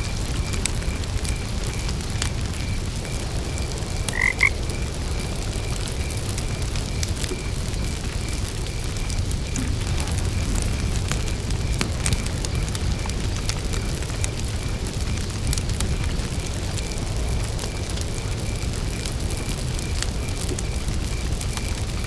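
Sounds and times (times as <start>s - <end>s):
campfire crackling: 0.0s - 22.0s
crickets chirping: 0.0s - 22.0s
frog croaking: 4.0s - 4.6s, 8.7s - 14.0s.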